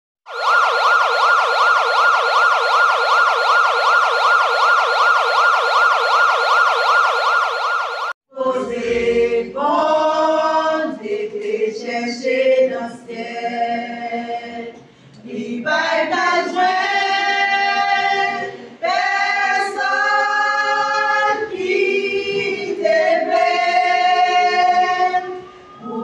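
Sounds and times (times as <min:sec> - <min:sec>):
siren-like wail: 0:00.3 - 0:08.2
group singing gospel song: 0:08.3 - 0:26.0.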